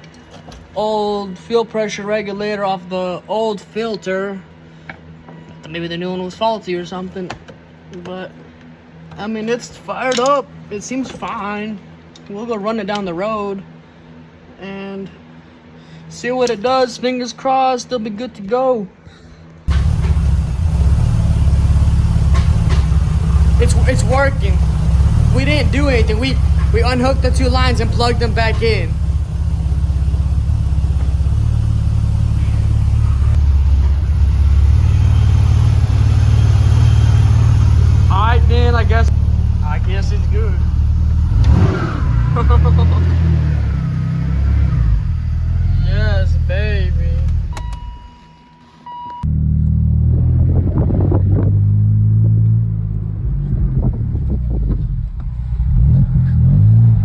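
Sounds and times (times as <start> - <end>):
car engine rumbling: 19.7 - 48.1, 49.3 - 57.0.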